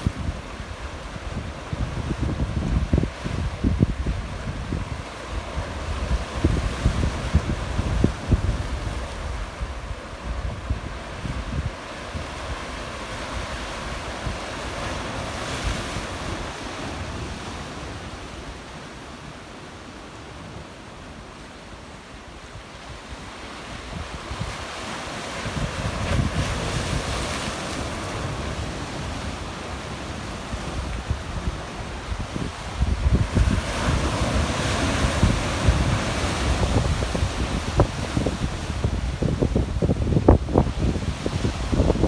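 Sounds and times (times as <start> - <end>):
wind buffeting microphone: 0.0 - 12.6, 25.4 - 27.3, 30.5 - 42.0
waves washing onto rocky shore: 23.3 - 42.0.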